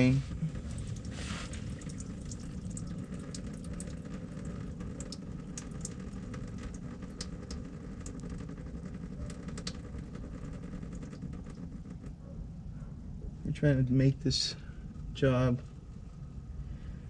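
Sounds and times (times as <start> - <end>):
oil dripping into pan: 0.5 - 11.8.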